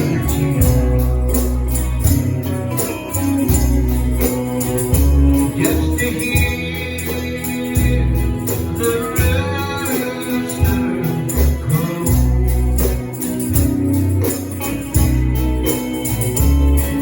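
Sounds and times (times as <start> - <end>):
person singing: 0.0 - 3.5, 4.1 - 13.6
tambourine beat: 0.0 - 17.0
walking bass line: 0.0 - 17.0.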